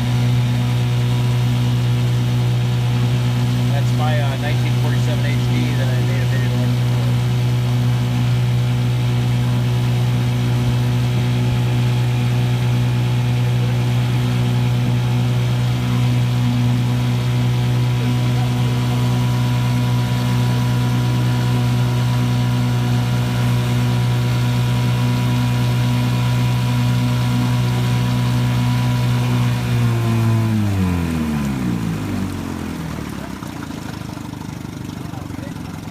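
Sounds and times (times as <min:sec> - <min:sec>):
outboard motor running: 0:00.0 - 0:35.9.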